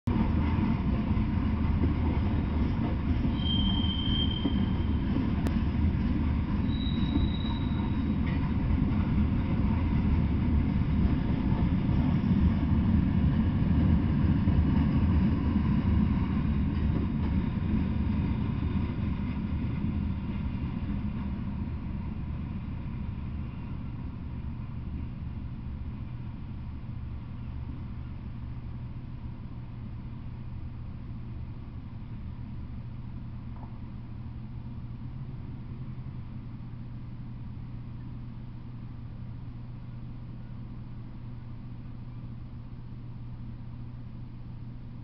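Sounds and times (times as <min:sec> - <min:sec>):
freight train wheels rumbling: 0:00.1 - 0:44.0
high-pitched wheel squeals: 0:03.2 - 0:05.2, 0:06.6 - 0:08.2.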